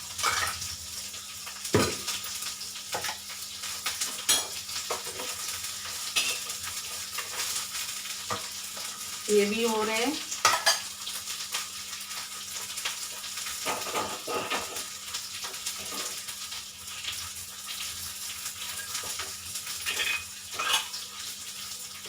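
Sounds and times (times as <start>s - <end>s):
onions sizzling in hot oil: 0.0s - 22.0s
spoon stirring and scraping pan: 2.9s - 9.0s, 10.4s - 11.0s, 13.6s - 16.3s, 18.6s - 21.4s.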